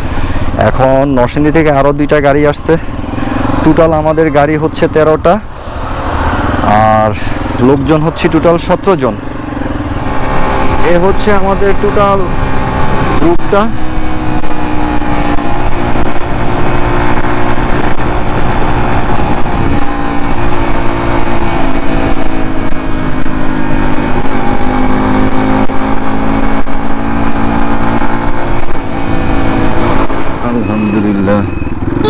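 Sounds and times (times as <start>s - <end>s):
motorcycle engine cruising: 0.0s - 32.0s
wind and road rush: 0.0s - 32.0s.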